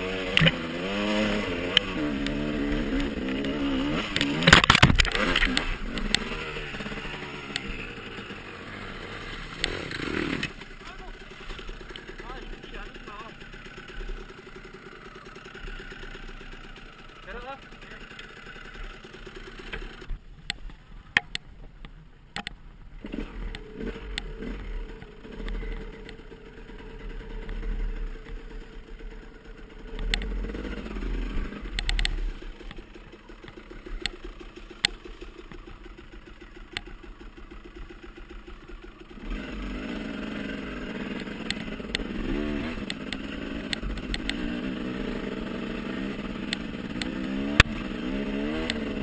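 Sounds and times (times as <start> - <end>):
dirt bike engines revving: 0.0 - 20.2, 23.0 - 49.0.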